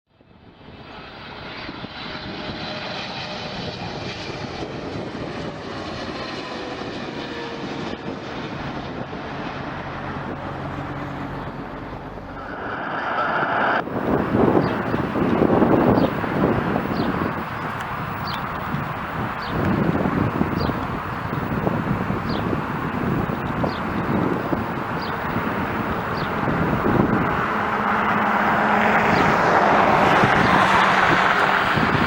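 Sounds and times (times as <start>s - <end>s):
airliner engines passing: 0.2s - 32.0s.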